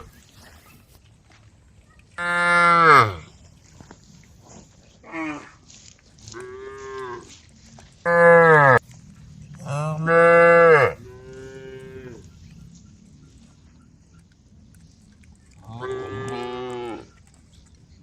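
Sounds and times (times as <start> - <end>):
cows mooing: 2.2 - 3.3, 8.0 - 8.8, 9.6 - 12.5, 15.6 - 17.2.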